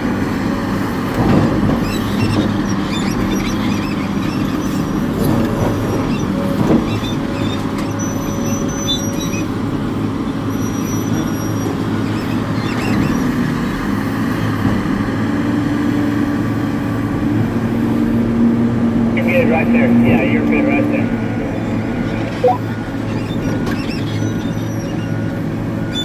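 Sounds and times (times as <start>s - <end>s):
excavator diesel engine running: 11.8s - 23.2s.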